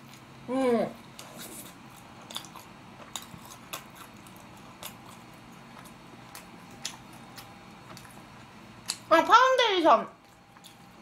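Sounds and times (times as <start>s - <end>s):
person chewing food: 0.0s - 0.4s, 1.0s - 9.1s, 10.2s - 11.0s.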